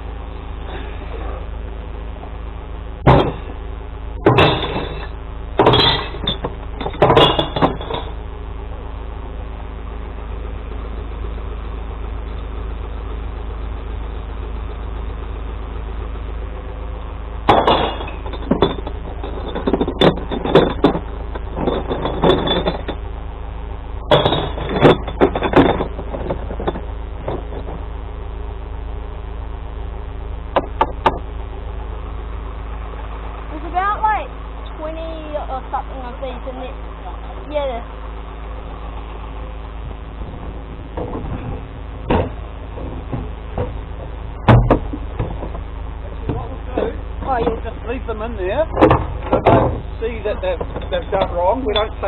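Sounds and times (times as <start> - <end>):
truck engine idling: 0.0 - 52.0
glass bottles clattering and smashing: 4.3 - 8.2, 17.5 - 23.0, 24.1 - 27.7.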